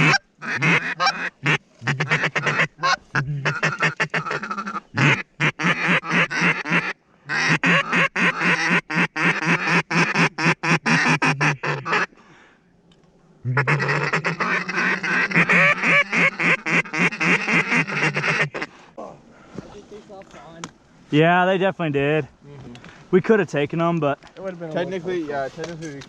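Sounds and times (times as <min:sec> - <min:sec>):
duck call quacks: 0:00.0 - 0:12.1, 0:13.4 - 0:18.7.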